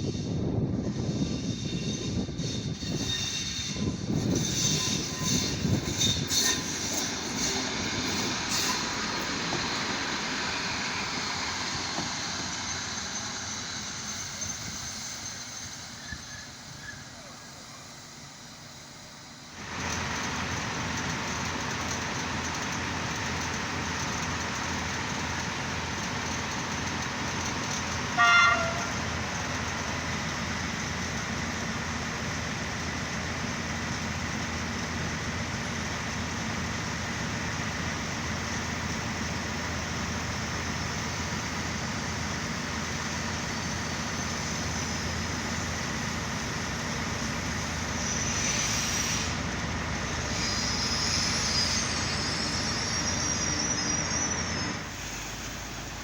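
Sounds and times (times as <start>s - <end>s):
diesel railcar engine running: 0.0s - 56.0s
train horn toot: 28.2s - 29.0s.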